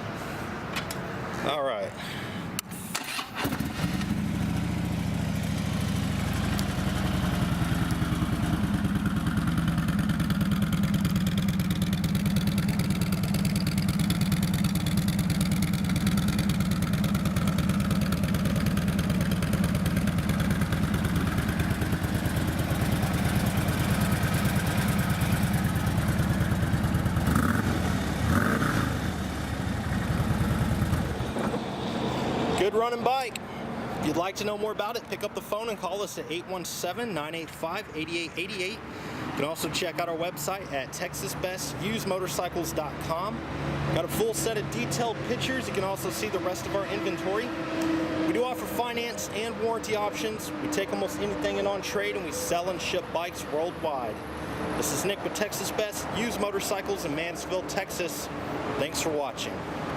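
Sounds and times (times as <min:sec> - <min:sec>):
motorcycle engine idling: 0:03.6 - 0:31.4.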